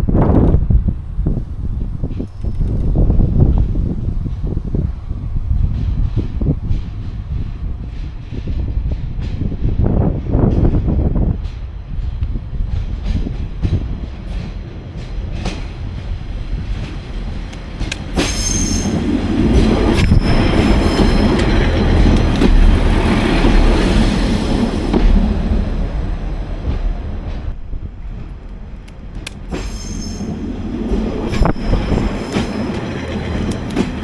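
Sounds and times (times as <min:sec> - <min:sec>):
diesel train engine rumble: 0:00.0 - 0:34.0
high-pitched wheel squeal: 0:18.3 - 0:19.0.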